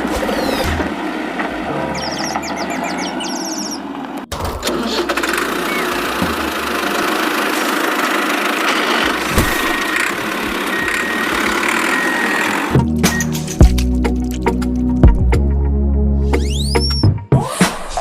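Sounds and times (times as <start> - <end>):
toy tractor motor running: 4.4 - 12.8.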